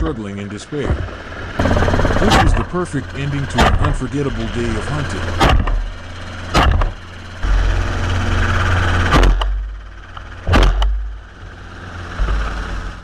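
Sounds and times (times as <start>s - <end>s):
helicopter rotor drone: 0.0s - 13.0s
gunshots: 1.6s - 4.1s.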